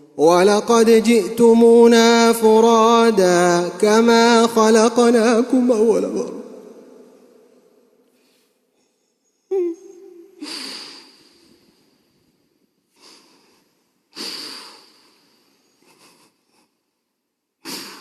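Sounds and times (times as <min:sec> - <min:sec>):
man gasping breaths: 0:10.4 - 0:12.0, 0:12.9 - 0:16.8.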